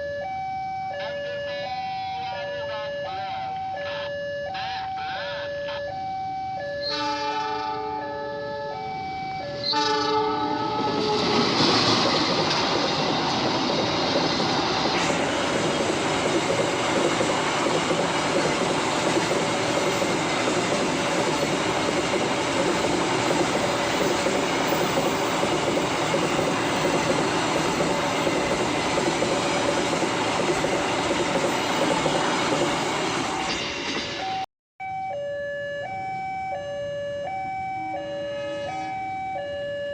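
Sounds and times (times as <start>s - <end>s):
two-tone crossing alarm: 0.0s - 32.0s, 32.6s - 39.9s
train horn: 0.9s - 6.0s, 6.8s - 8.7s, 9.6s - 11.7s, 38.2s - 39.1s
train wheels clattering on rails: 10.7s - 34.4s.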